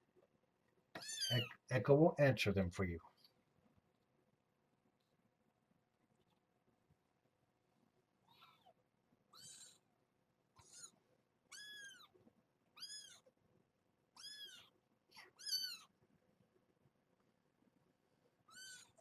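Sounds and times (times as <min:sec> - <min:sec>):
kitten mewing: 0:01.0 - 0:01.6, 0:08.2 - 0:09.9, 0:12.8 - 0:13.3, 0:14.2 - 0:15.9, 0:18.5 - 0:19.0.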